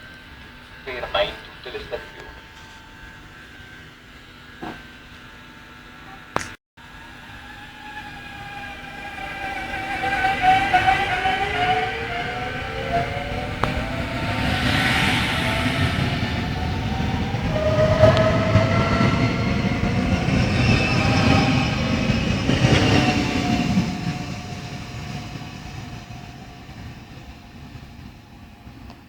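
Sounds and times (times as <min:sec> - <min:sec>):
train wheels rumbling on rail: 0:07.4 - 0:29.0.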